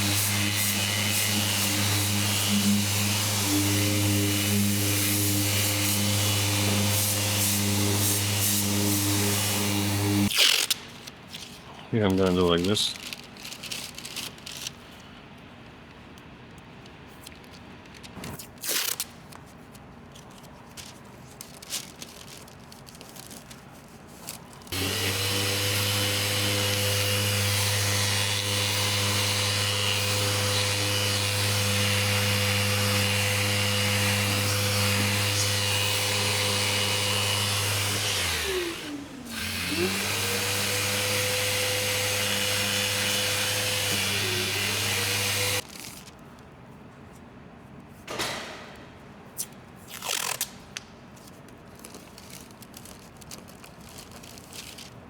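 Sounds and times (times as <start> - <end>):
power sander whirring: 0.0 - 10.3, 24.7 - 45.6.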